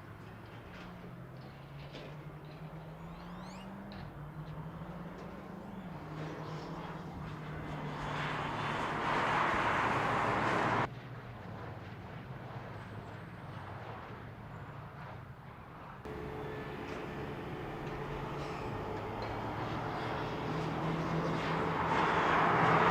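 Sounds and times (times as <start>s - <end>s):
wind and road noise: 0.0s - 22.9s
car engine hum: 2.5s - 10.9s, 16.1s - 22.9s.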